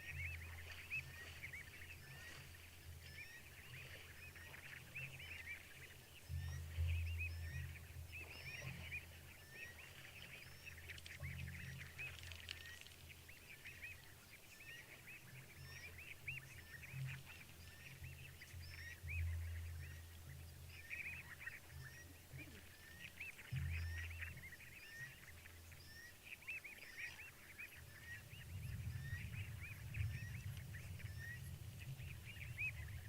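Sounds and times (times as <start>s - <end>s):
deep low rumbles: 6.2s - 9.9s, 17.1s - 22.5s, 23.5s - 25.9s, 27.8s - 33.0s.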